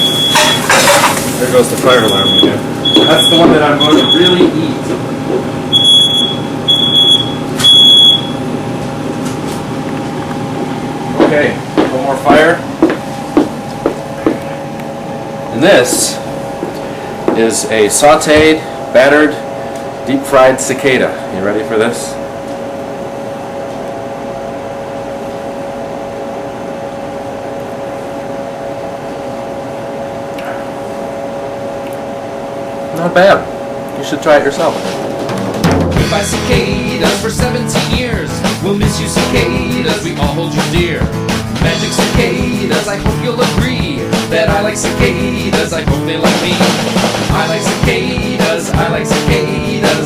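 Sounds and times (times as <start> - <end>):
smoke alarm beeping: 0.0 - 0.8, 1.8 - 4.6, 5.7 - 8.5
fan-like mechanical hum with whine: 0.0 - 50.0.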